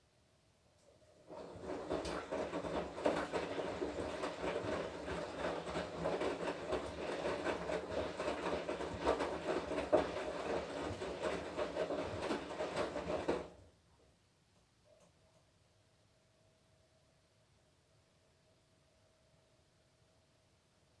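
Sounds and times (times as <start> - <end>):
washing machine drum tumbling: 1.2 - 13.6.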